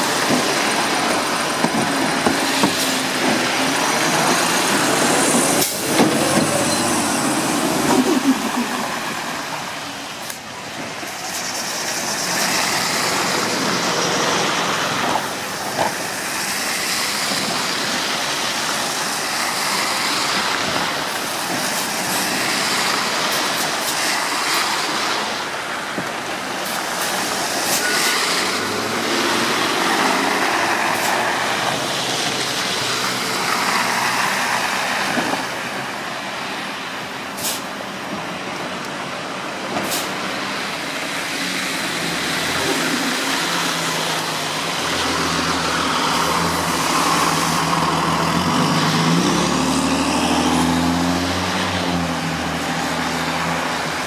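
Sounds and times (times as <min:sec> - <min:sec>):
garbage truck running: 0:00.0 - 0:54.0
air brakes hissing: 0:37.4 - 0:37.7.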